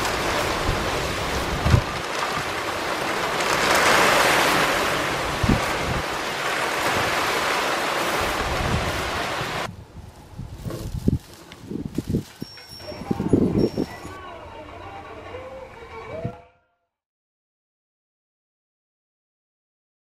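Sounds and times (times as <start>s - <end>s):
heavy rain: 0.0s - 9.7s
wind buffeting microphone: 0.0s - 14.1s
wind gusting: 0.0s - 14.8s.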